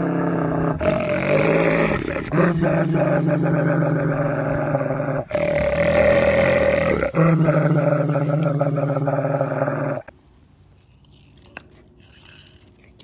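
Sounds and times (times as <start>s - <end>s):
dog growling: 0.0s - 10.1s.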